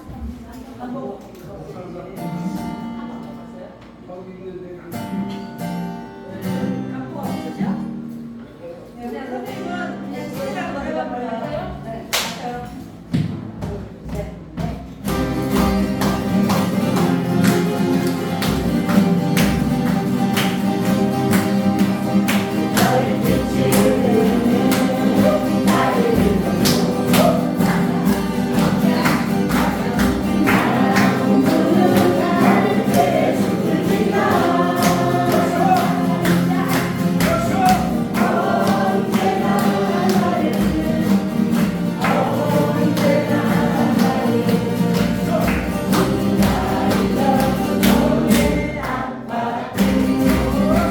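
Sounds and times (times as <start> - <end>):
strummed guitars: 9.4 - 50.9
group singing: 15.2 - 50.9.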